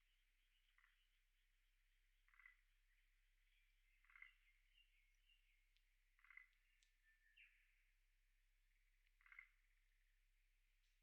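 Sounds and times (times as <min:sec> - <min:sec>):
frog calling: 0:02.3 - 0:02.6.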